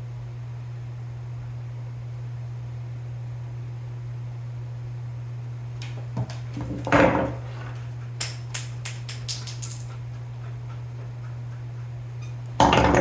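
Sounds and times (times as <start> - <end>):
steady low hum: 0.0 - 13.0
knock on workbench: 6.6 - 7.4, 12.6 - 13.0.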